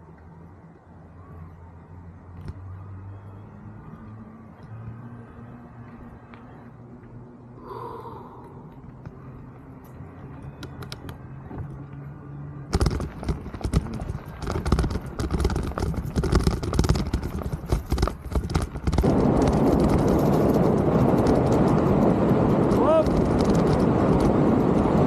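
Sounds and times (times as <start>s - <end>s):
tyres and wind rushing: 0.0s - 25.0s
bike rattling over trail: 12.7s - 25.0s.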